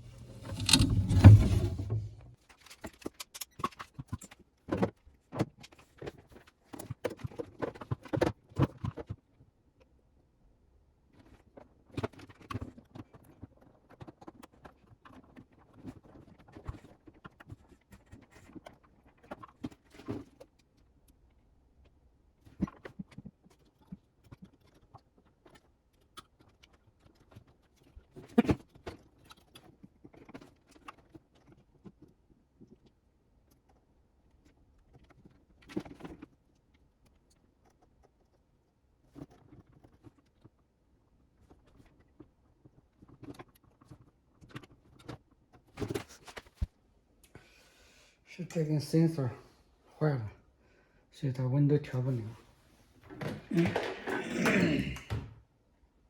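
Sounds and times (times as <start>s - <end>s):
clicks and knocks inside fridge: 0.0s - 2.3s.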